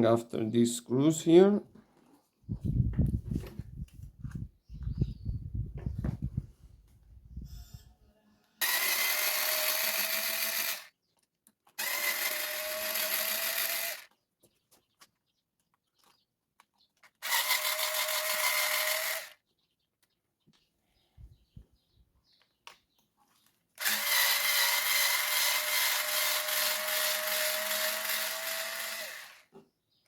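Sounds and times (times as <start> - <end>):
electric screwdriver whirring: 8.6 - 10.9, 11.8 - 14.2, 17.2 - 19.4, 23.8 - 29.5.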